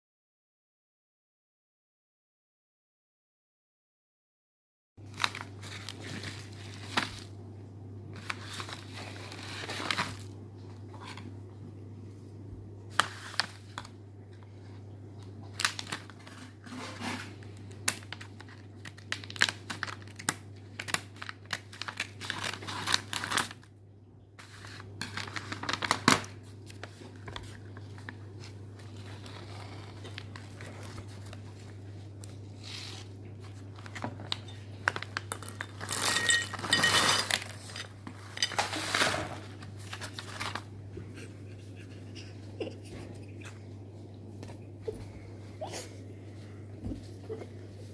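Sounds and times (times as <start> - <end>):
plastic snack bag crinkling: 5.0 - 7.5, 8.1 - 11.3, 12.9 - 23.7, 24.4 - 40.8
steady low hum: 23.6 - 47.9.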